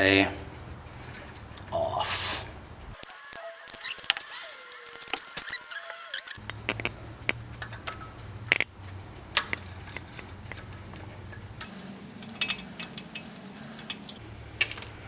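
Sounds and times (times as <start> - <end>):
metallic tool clicks and scrapes: 3.0 - 8.7, 9.3 - 15.0.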